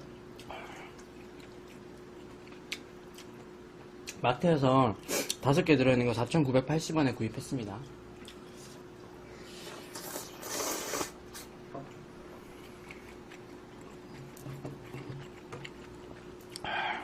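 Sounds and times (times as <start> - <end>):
faint steady hum: 0.0 - 17.0
quiet chewing with clicks: 0.1 - 4.2, 7.8 - 8.7, 12.5 - 16.7
loud noodle slurp: 9.9 - 11.2.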